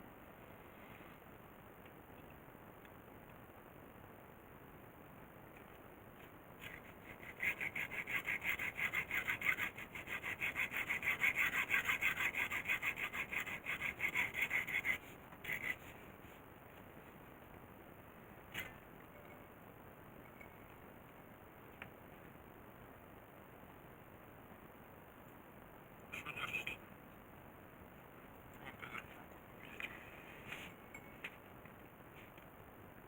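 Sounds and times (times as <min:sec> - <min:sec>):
rhythmic rasping strokes: 0:06.6 - 0:16.0.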